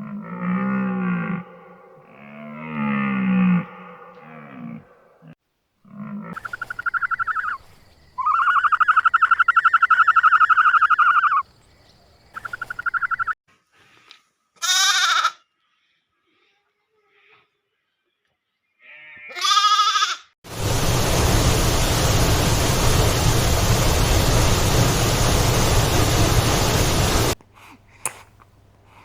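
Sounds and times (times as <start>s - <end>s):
young goat bleating: 14.6s - 15.4s, 19.2s - 20.3s.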